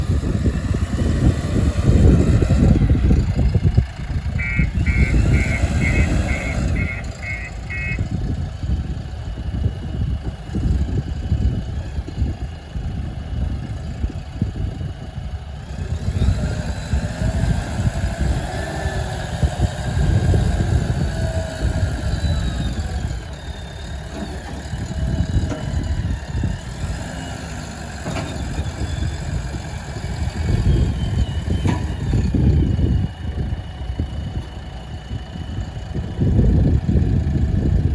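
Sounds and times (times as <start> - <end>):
diesel engine running: 0.0 - 37.9
short high warning beeps: 4.4 - 8.0.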